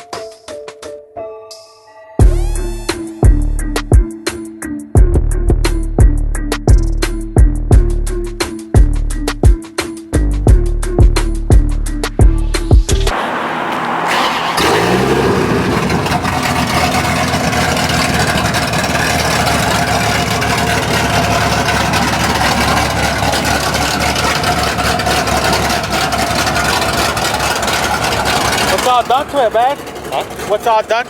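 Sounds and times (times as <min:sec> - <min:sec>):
engine starting and idling: 0:13.1 - 0:31.0.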